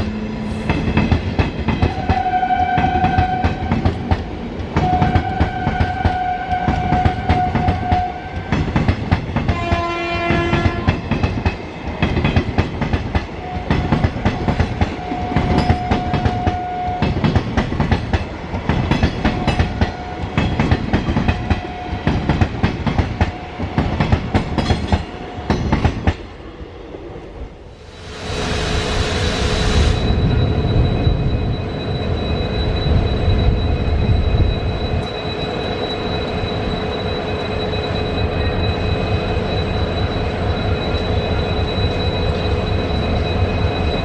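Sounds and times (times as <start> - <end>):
train horn blast: 1.9 - 3.8, 4.8 - 8.4, 9.5 - 11.0
train wheels clattering: 2.9 - 26.2.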